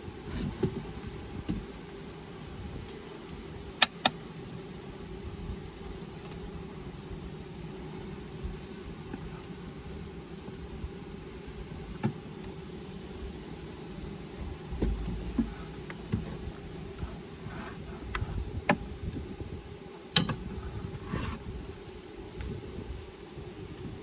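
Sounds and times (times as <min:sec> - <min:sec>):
honeybees buzzing: 0:00.0 - 0:24.0
hive parts knocking and clicking: 0:20.1 - 0:20.5.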